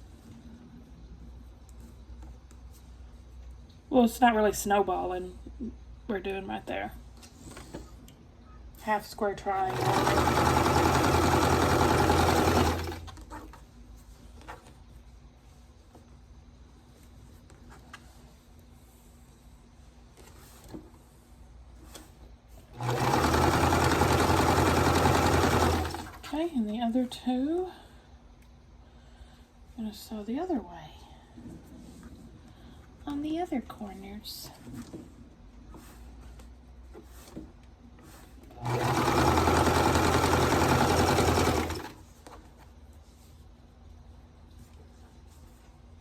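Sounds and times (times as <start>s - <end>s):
electric sewing machine running: 9.6s - 13.2s, 22.8s - 26.3s, 38.6s - 42.0s.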